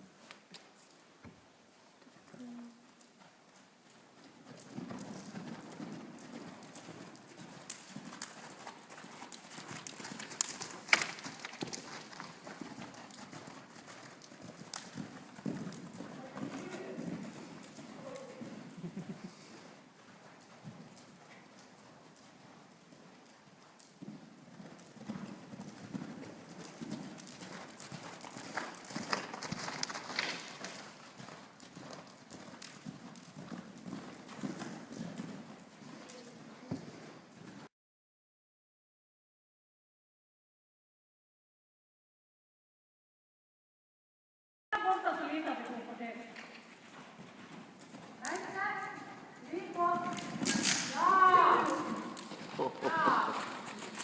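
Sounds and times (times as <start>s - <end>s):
horse hooves running: 2.9s - 37.7s, 44.8s - 54.0s.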